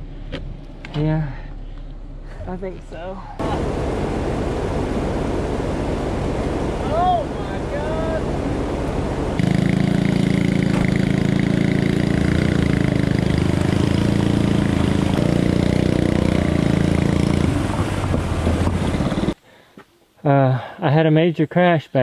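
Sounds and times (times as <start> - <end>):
small engine running: 3.4 - 19.4.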